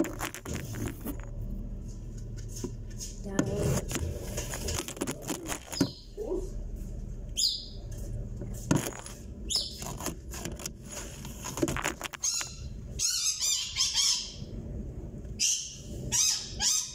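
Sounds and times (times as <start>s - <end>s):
washing machine hum: 0.0s - 16.9s
bird chirping: 5.6s - 6.3s, 7.3s - 7.9s, 9.5s - 10.0s, 12.2s - 14.5s, 15.4s - 16.9s.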